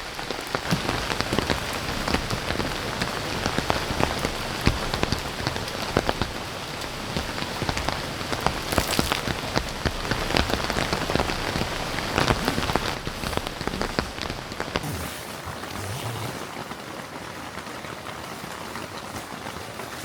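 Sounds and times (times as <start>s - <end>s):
heavy rain falling: 0.0s - 20.0s
raindrops striking close by: 0.0s - 20.0s.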